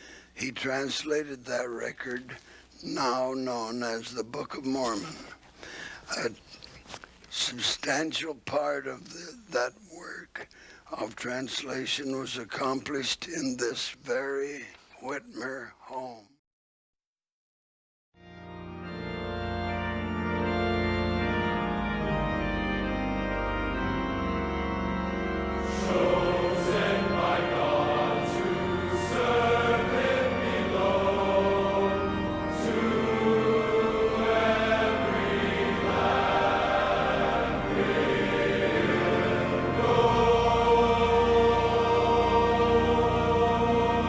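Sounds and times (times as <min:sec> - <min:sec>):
sustained chords: 0:18.5 - 0:44.0
choir singing: 0:25.2 - 0:44.0.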